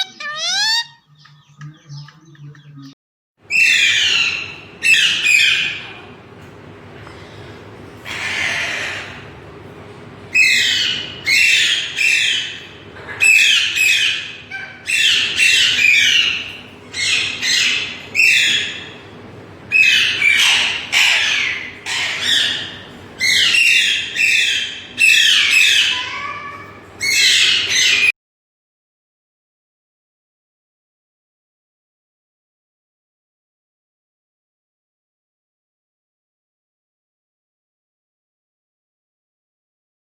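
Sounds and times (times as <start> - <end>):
parrot squawking: 0.0 - 1.1, 3.5 - 6.2, 8.0 - 9.4, 10.3 - 19.0, 19.7 - 28.1.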